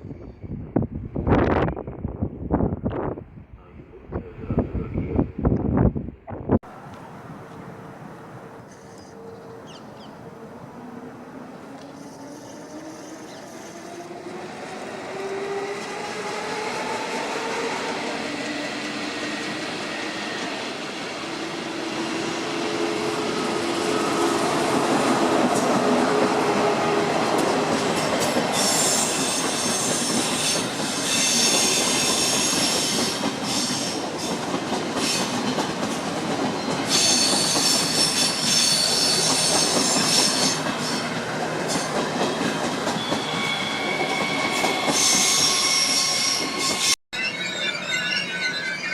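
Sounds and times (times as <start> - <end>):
rail noise: 0.0 - 48.9
electric train whine: 6.8 - 48.9
wheel squeal: 41.7 - 48.9.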